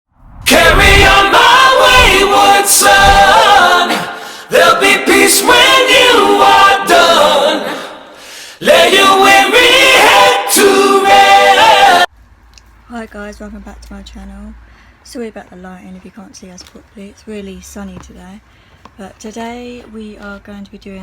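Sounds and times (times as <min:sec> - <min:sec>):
voices singing in harmony: 0:00.5 - 0:12.1.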